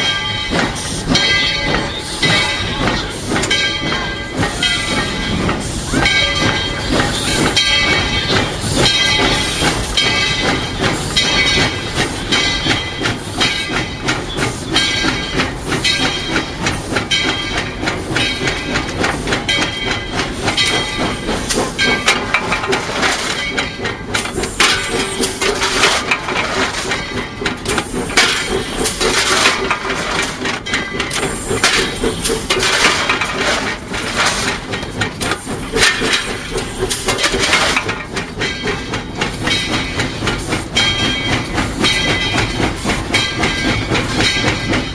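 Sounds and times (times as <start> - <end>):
steam hissing: 0.0 - 44.9
steam locomotive mechanical clatter: 0.0 - 44.9.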